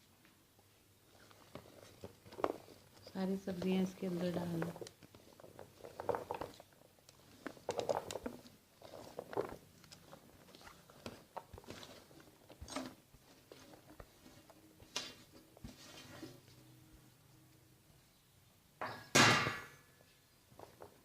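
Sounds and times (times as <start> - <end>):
vegetables rustling into flour bowl: 1.0 - 16.7.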